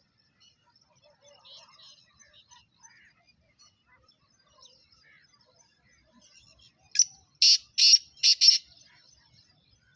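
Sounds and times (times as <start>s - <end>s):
faint bird chirping: 0.0s - 9.9s
bird giving harsh buzzy calls: 7.4s - 8.6s.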